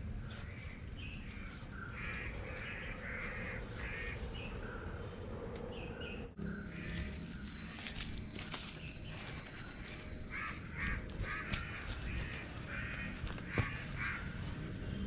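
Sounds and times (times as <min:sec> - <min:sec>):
crows cawing: 0:01.7 - 0:04.8, 0:06.5 - 0:07.6, 0:09.8 - 0:14.6.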